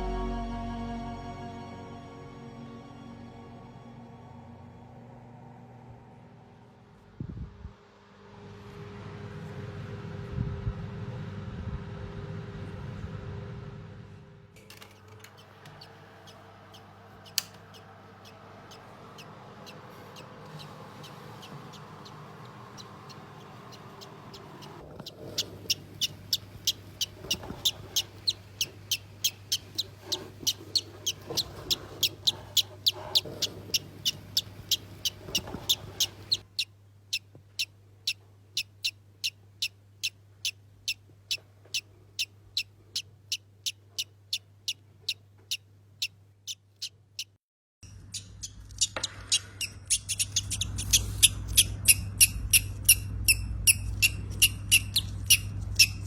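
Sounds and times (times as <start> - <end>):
low steady hum: 0.0 - 44.7
baby bird peeping: 14.8 - 56.0.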